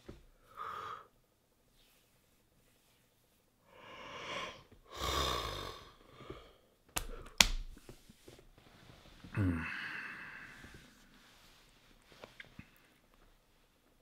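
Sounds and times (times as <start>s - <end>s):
man breathing out and sighing: 9.3s - 11.1s.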